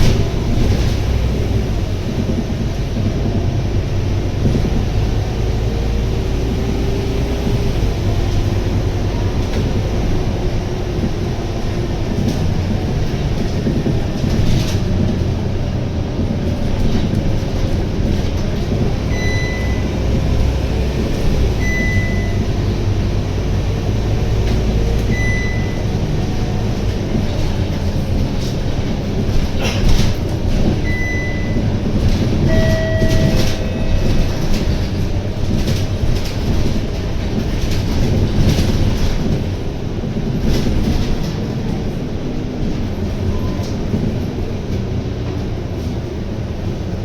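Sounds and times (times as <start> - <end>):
bus engine running: 0.0 - 47.0
short high electronic beeps: 32.5 - 33.9.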